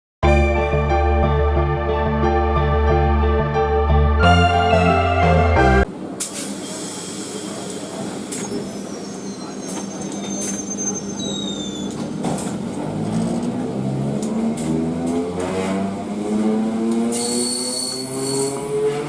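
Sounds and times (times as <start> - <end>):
intro music: 0.2 - 5.9.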